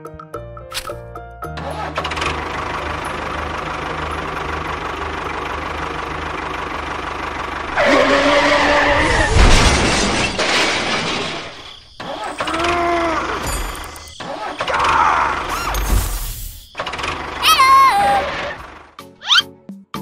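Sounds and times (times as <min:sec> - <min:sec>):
model tractor engine humming: 0:01.7 - 0:08.8, 0:16.7 - 0:17.4.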